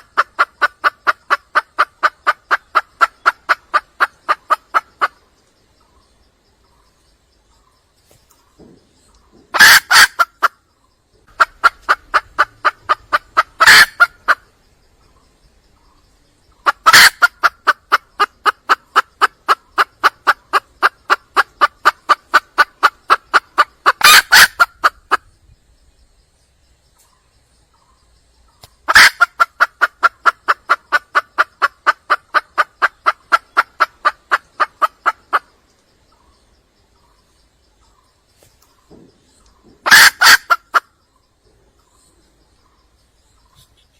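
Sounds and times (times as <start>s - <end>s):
hen clucking: 0.0s - 5.4s, 8.6s - 10.6s, 11.2s - 14.6s, 16.5s - 25.3s, 28.5s - 36.3s, 38.7s - 40.9s.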